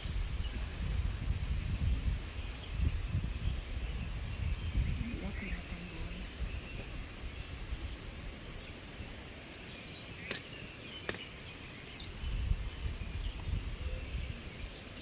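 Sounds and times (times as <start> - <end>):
wind rumbling on microphone: 0.0 - 15.0
faint bird chirps: 2.3 - 15.0.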